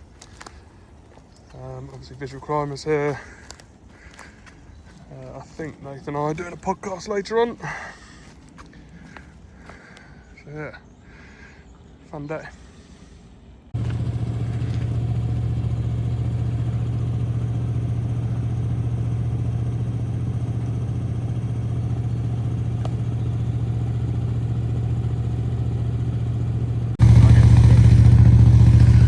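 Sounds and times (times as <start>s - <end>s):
engine running steadily: 13.8s - 29.0s.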